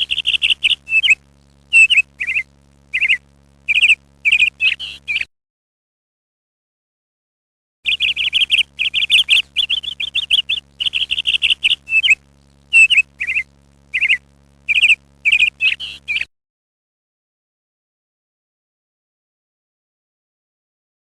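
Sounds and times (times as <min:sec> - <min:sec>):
small birds chirping: 0:00.0 - 0:05.3, 0:07.9 - 0:16.3.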